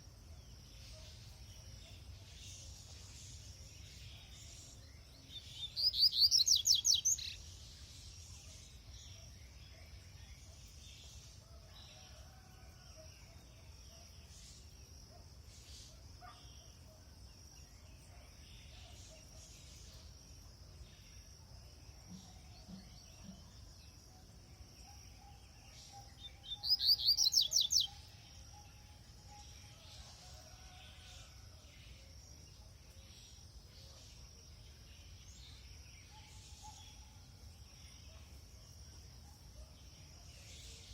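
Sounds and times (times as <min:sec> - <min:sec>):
bird singing trilled phrases: 0:05.3 - 0:07.4, 0:25.2 - 0:28.2.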